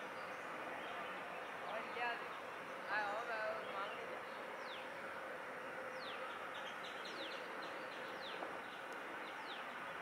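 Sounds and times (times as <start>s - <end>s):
steady outdoor hiss: 0.0s - 10.0s
bird chirping: 5.8s - 9.8s.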